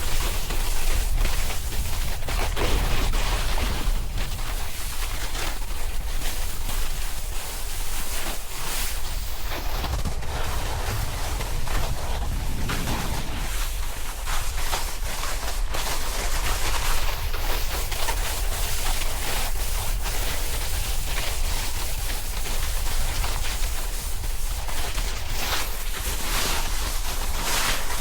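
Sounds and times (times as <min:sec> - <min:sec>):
wind rumbling on microphone: 0:00.0 - 0:17.9
snowboard scraping over snow: 0:00.1 - 0:17.7.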